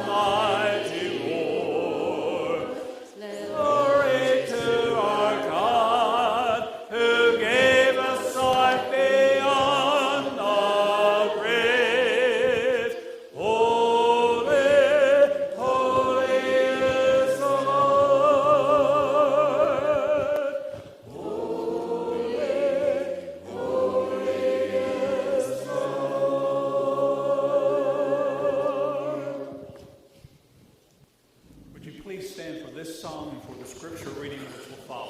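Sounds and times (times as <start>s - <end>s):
choir singing sacred music: 0.0s - 30.2s
singers breathing: 2.8s - 3.2s.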